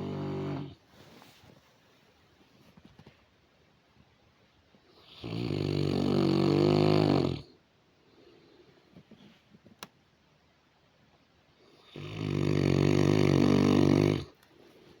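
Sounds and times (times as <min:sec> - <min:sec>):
dog snoring: 0:00.0 - 0:00.8, 0:05.0 - 0:07.6, 0:11.6 - 0:14.4.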